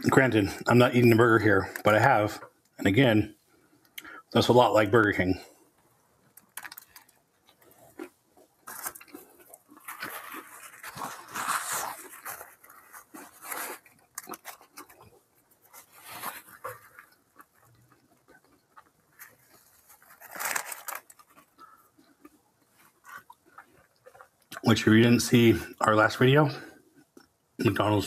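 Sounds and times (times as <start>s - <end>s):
chewing and mouth noises: 6.2s - 24.7s
paper wrapper rustling: 8.6s - 15.0s, 19.1s - 21.6s.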